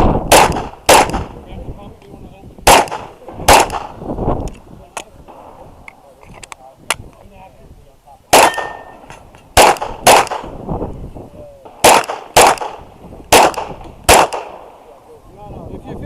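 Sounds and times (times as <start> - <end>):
pistol shots: 0.2 - 1.3, 2.6 - 4.0, 8.3 - 10.5, 11.7 - 14.7.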